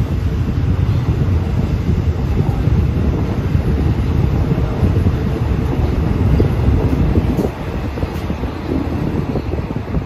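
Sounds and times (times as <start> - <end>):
train rumbling: 0.0 - 10.0
wind buffeting microphone: 0.0 - 10.0.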